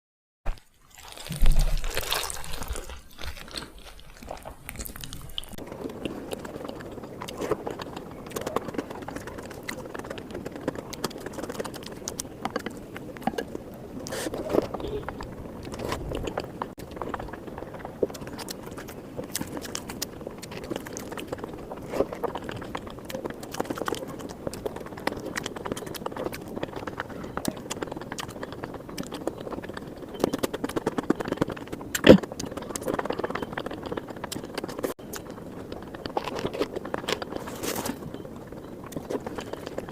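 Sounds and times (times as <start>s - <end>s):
close-miked chewing and biting: 0.5s - 39.9s
mouth clicks: 4.2s - 35.4s.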